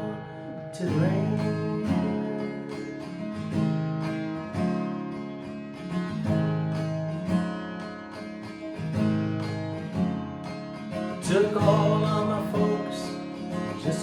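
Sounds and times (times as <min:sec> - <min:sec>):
acoustic guitar strumming: 0:00.0 - 0:14.0
person singing: 0:11.2 - 0:14.0.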